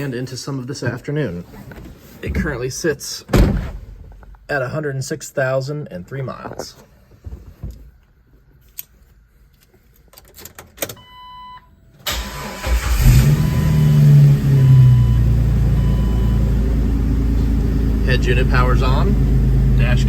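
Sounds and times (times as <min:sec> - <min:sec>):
car engine starting and idling: 0:12.0 - 0:20.0.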